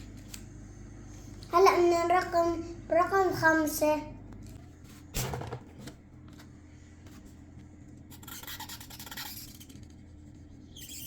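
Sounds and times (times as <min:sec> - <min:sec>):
pen scratching on a board: 0:08.1 - 0:10.0.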